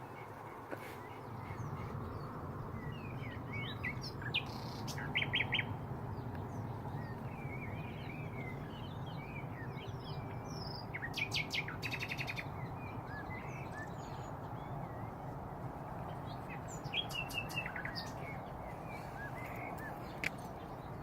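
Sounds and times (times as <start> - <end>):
nightingale singing: 0.0 - 21.0.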